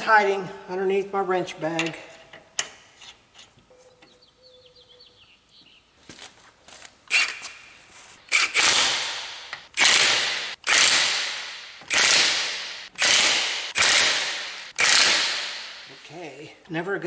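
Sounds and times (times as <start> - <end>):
impact wrench running lug nuts: 7.1 - 16.1.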